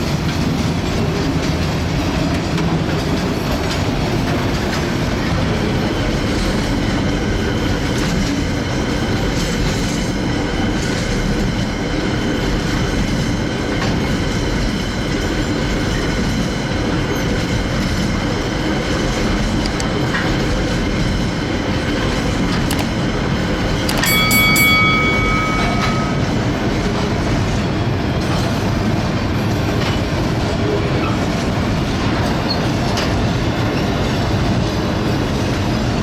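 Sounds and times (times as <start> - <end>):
train wheels rumbling on track: 0.0 - 36.0
rail clacks: 6.2 - 33.4.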